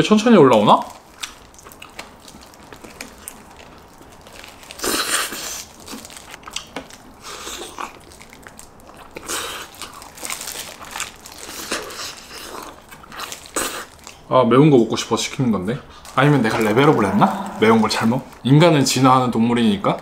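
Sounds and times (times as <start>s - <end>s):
crunching fried chicken: 0.1s - 14.3s.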